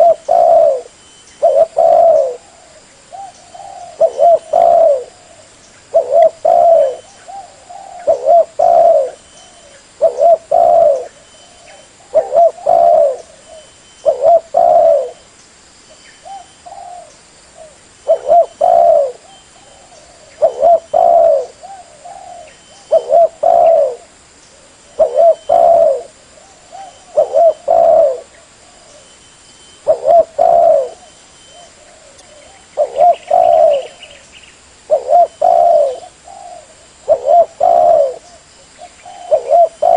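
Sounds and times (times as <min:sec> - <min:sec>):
dove cooing: 0:00.0 - 0:15.2, 0:16.2 - 0:34.2, 0:34.8 - 0:39.9.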